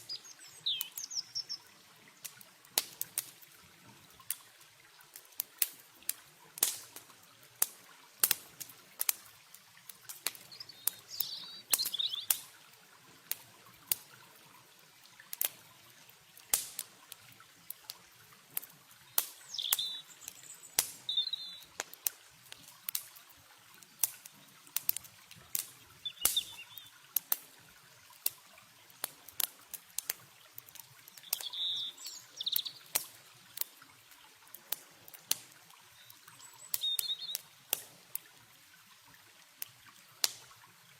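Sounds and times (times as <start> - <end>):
bird chirps: 0.0 - 1.7, 10.5 - 12.3, 19.1 - 21.7, 26.0 - 26.9, 31.2 - 32.9, 36.0 - 37.4
campfire crackling and popping: 0.0 - 40.9
faint water trickling: 0.0 - 40.9.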